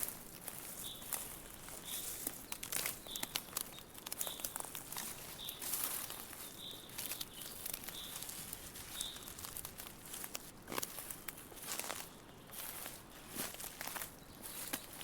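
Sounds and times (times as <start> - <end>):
dry leaves rustling: 0.0 - 15.0.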